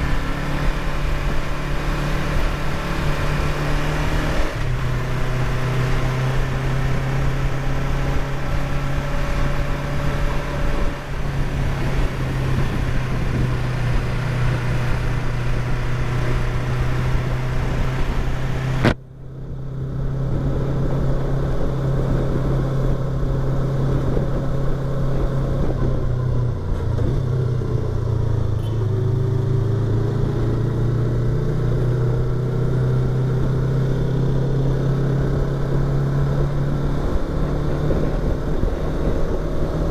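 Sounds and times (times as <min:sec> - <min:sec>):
wind rush: 0:00.0 - 0:19.0, 0:33.0 - 0:39.9
motorcycle engine and exhaust: 0:00.0 - 0:39.9.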